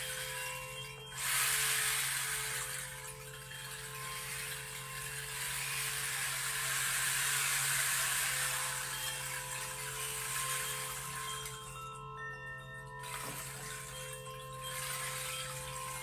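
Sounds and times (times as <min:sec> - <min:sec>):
singing bowl ringing: 0:00.0 - 0:16.0
stream flowing: 0:04.0 - 0:11.7.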